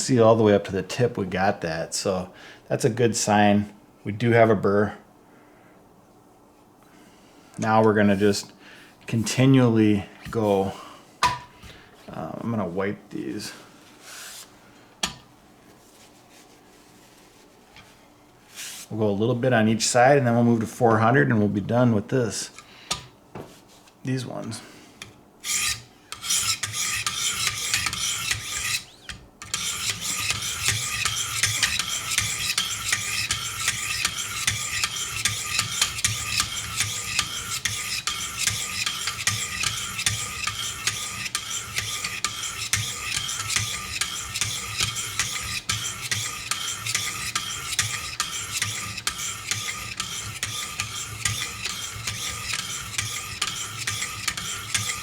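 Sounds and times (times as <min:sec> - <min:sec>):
sharpening stones scraping knife blade: 0:25.4 - 0:55.0.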